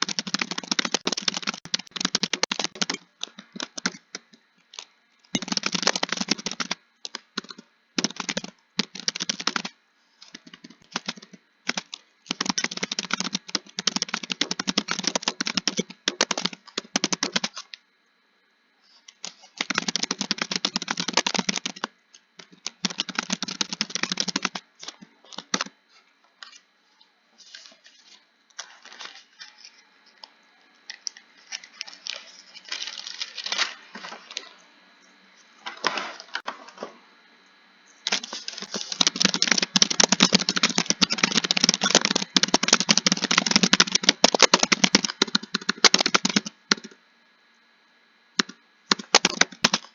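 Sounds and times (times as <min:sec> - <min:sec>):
computer keyboard typing: 0:00.0 - 0:17.8, 0:19.1 - 0:25.7, 0:38.0 - 0:47.0, 0:48.4 - 0:49.9.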